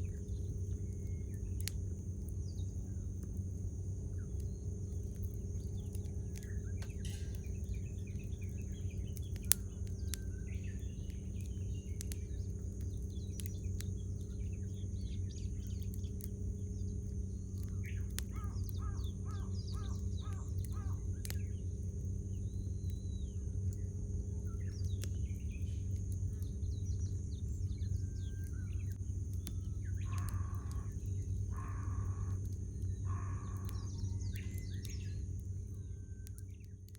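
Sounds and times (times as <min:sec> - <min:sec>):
campfire crackling and popping: 0:00.0 - 0:36.9
small birds chirping: 0:00.0 - 0:36.9
crow cawing: 0:18.3 - 0:21.0, 0:30.0 - 0:34.0.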